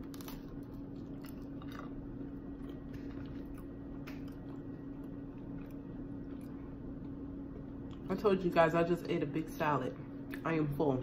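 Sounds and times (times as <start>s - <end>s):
person chewing: 0.0s - 8.1s
low background hum: 0.0s - 11.0s.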